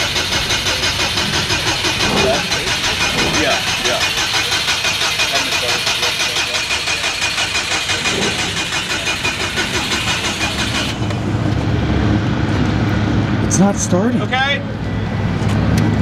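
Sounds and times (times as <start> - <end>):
engine cranking by starter: 0.0 - 12.8.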